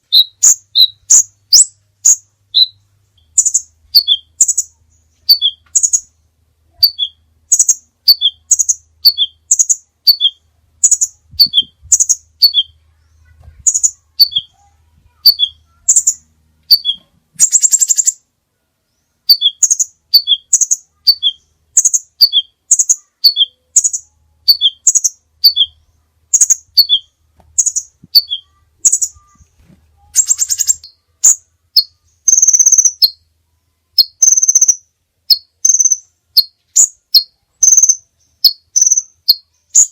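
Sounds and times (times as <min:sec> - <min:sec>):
bird buzzy trills: 0:00.0 - 0:18.3, 0:19.2 - 0:33.3, 0:33.9 - 0:39.9
songbird chirping: 0:00.0 - 0:39.9.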